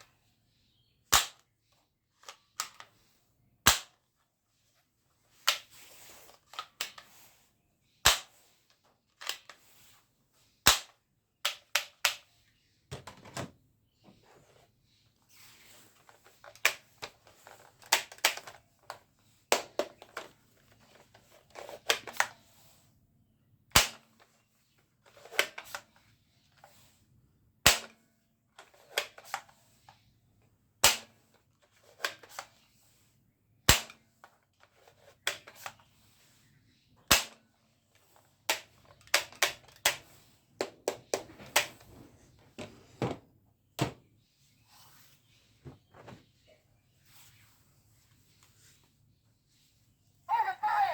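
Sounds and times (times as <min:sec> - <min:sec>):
toy guns shooting: 0:01.1 - 0:01.4, 0:03.7 - 0:04.0, 0:08.0 - 0:08.3, 0:10.6 - 0:10.9, 0:37.1 - 0:37.4.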